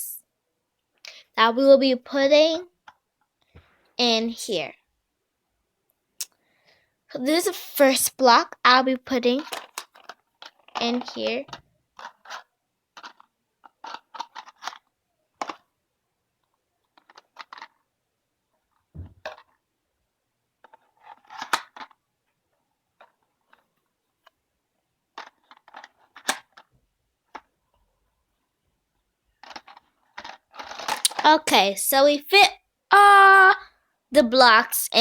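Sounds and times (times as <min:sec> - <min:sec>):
toy blocks clicking and clattering: 0:09.1 - 0:15.7, 0:16.5 - 0:17.9, 0:18.6 - 0:19.6, 0:20.6 - 0:22.0, 0:25.1 - 0:27.5, 0:29.4 - 0:31.5
dull thump: 0:18.9 - 0:19.2.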